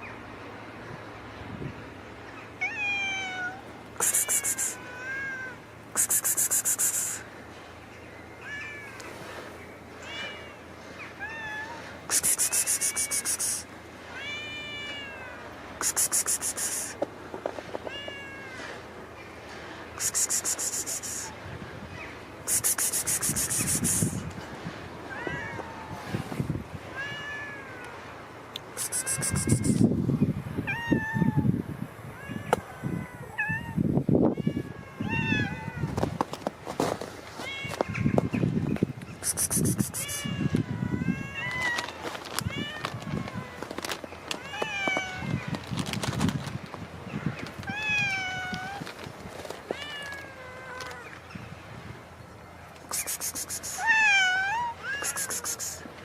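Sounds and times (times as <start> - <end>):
cat meowing: 2.6 - 5.6, 14.2 - 15.4, 25.1 - 26.1, 28.8 - 29.8, 30.6 - 31.5, 32.1 - 36.0, 47.6 - 48.9, 53.6 - 55.8.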